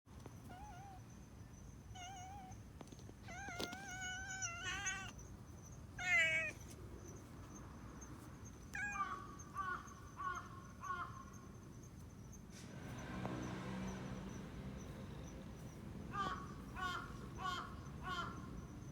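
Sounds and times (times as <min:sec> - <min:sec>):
cats meowing: 0:00.4 - 0:01.0, 0:02.0 - 0:02.6, 0:03.2 - 0:05.2, 0:06.0 - 0:06.7, 0:08.7 - 0:09.2.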